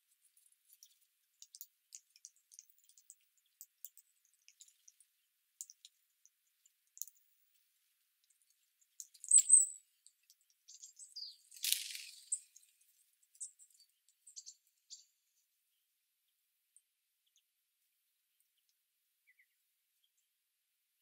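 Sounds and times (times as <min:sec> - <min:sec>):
small birds chirping: 0:00.0 - 0:20.5
noisy rustle: 0:11.6 - 0:12.4.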